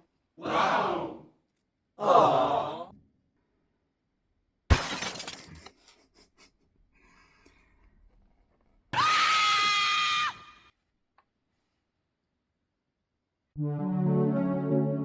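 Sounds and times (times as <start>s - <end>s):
glass breaking: 4.7s - 5.7s.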